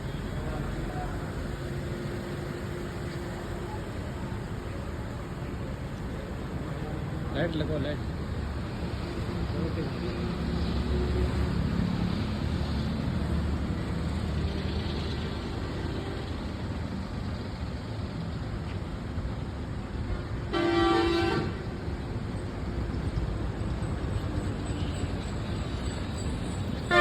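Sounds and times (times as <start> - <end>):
vehicle and street rumble: 0.0 - 27.0
car horn toot: 20.6 - 21.6.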